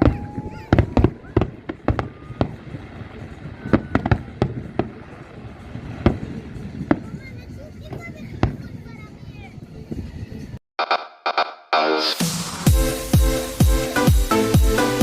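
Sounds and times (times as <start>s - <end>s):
fireworks bangs: 0.0s - 9.0s.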